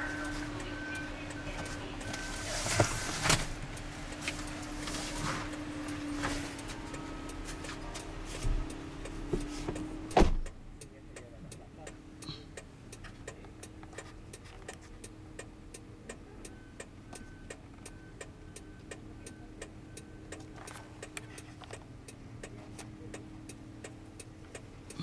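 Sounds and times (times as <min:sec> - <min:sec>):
short electronic beeps: 0:00.0 - 0:03.4
car engine hum: 0:00.0 - 0:25.0.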